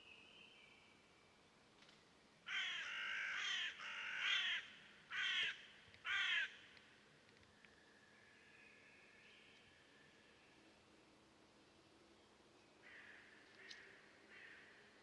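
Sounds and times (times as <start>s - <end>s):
bird cawing: 2.5s - 6.6s, 12.8s - 14.8s.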